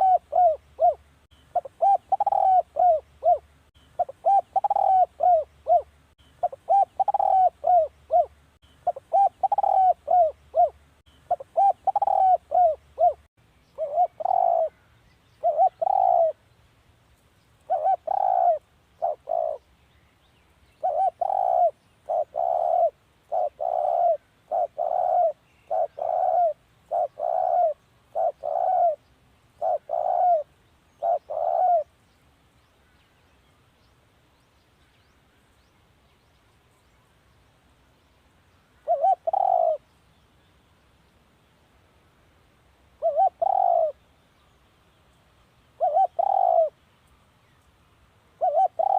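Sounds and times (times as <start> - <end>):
dove cooing: 0.0 - 14.8, 15.4 - 16.4, 17.6 - 19.6, 20.8 - 29.0, 29.6 - 31.9, 38.8 - 39.9, 43.0 - 44.0, 45.8 - 46.8, 48.4 - 48.9.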